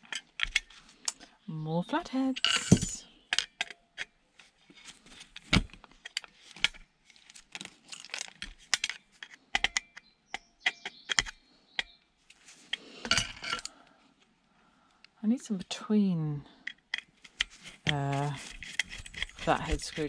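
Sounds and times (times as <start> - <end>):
metal hand tools clinking: 2.3 - 3.8, 13.0 - 13.7.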